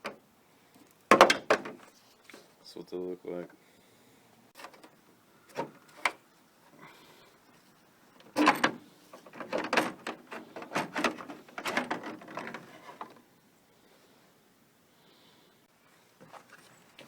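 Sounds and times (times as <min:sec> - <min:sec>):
hard knocks and clatters: 0:01.1 - 0:01.9, 0:08.3 - 0:13.2.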